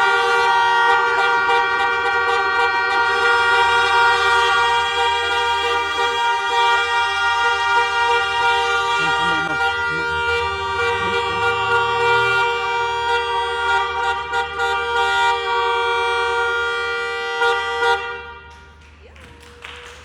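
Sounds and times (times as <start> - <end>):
two-tone car horn blast: 0.0 - 18.8
voices: 7.6 - 14.0.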